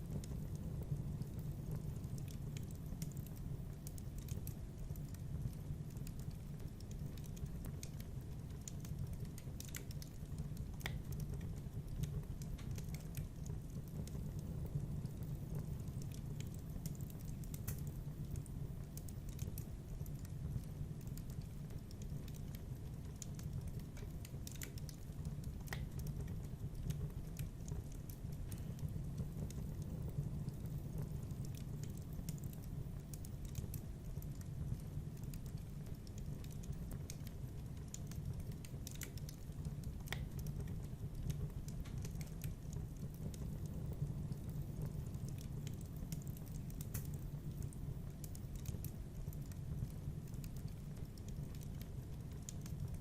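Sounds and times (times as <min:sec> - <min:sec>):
low fire rumble: 0:00.0 - 0:53.0
wood fire crackling and popping: 0:00.0 - 0:53.0.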